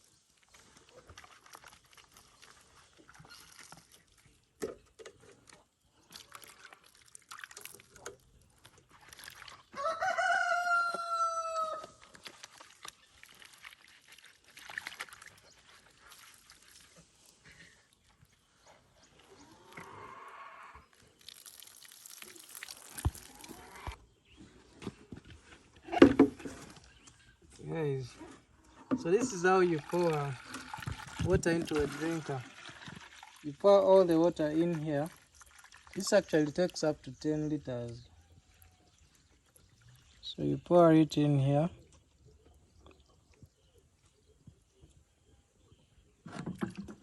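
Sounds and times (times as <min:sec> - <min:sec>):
rooster crowing: 0:09.8 - 0:12.0
water splashing and rushing: 0:29.0 - 0:36.9.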